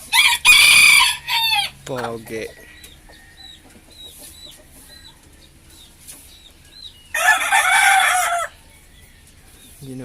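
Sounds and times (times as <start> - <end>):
rooster crowing loudly: 0.0 - 1.8, 7.1 - 8.6
chicks peeping: 0.0 - 10.0.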